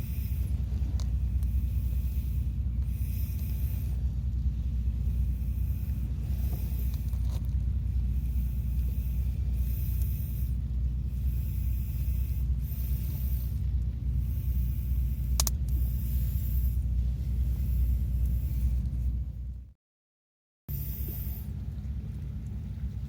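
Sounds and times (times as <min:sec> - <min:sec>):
sharp click: 0:15.3 - 0:15.8.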